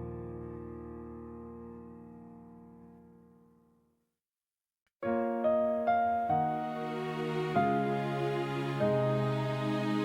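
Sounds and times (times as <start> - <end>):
sustained piano chords: 5.0 - 10.0.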